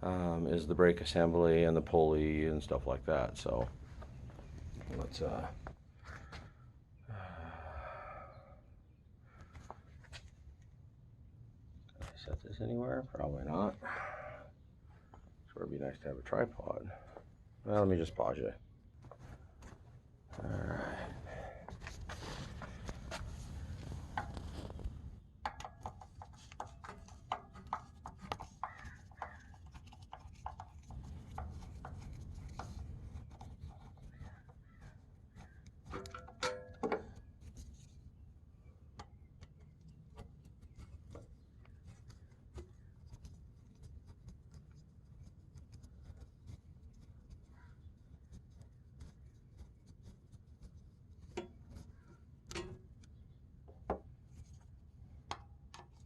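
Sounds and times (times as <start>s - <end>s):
handling clicks and knocks: 21.7s - 37.8s, 38.9s - 44.7s, 51.2s - 56.0s
ringing metal clank: 36.0s - 37.0s.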